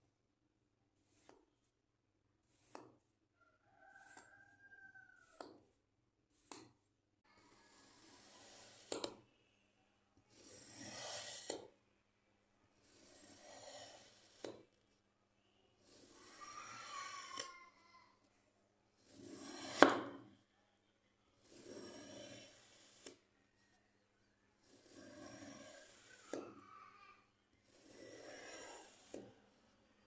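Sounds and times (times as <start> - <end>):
blade scraping through sand: 10.3 - 11.5, 27.8 - 29.1.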